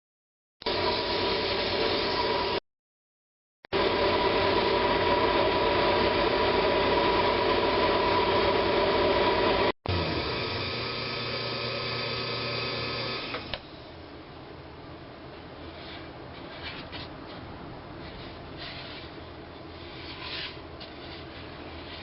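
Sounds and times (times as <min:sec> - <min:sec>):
lathe with tool cutting wood: 0:03.8 - 0:13.5.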